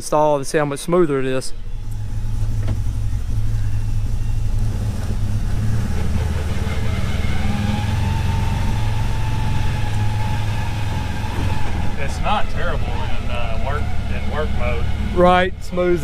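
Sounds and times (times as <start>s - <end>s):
engine running: 0.0s - 16.0s
thin whine: 1.5s - 16.0s.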